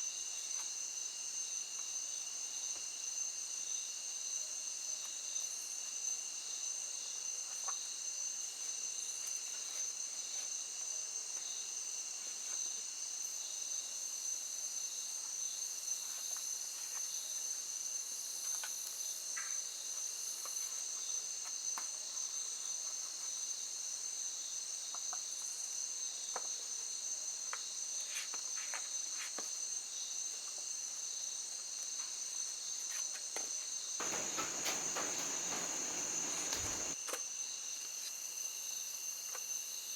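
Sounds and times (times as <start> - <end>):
faint clicks: 34.0 - 37.0
insects trilling: 34.0 - 37.0.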